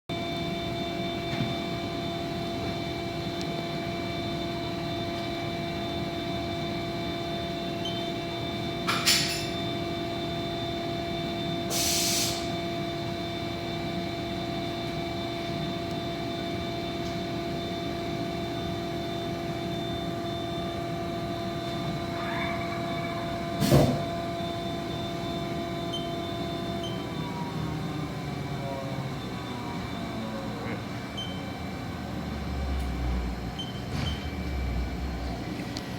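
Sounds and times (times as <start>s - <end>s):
lathe whine: 0.1s - 33.4s
short hisses: 11.7s - 12.5s.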